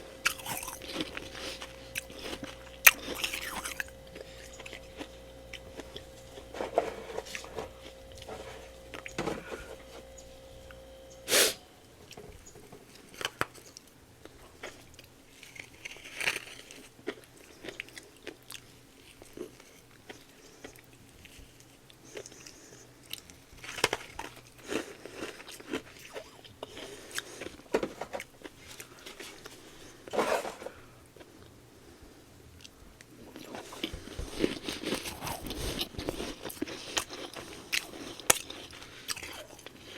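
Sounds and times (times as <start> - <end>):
faint steady tone: 0.0 - 12.6
low hum: 0.0 - 12.7
frost being chewed: 0.0 - 29.9, 32.6 - 39.9.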